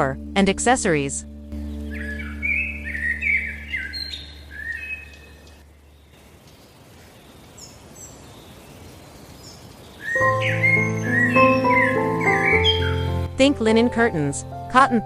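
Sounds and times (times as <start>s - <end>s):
birds chirping and singing: 1.5s - 13.3s
faint hiss: 5.1s - 10.2s.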